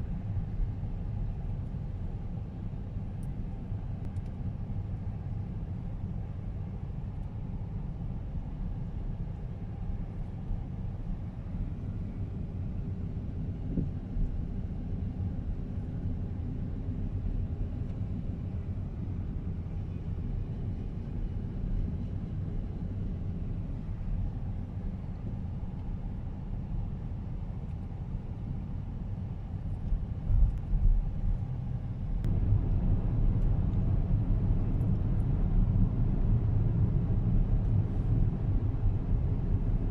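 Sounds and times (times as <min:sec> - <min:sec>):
car driving rumble: 0:08.7 - 0:39.9.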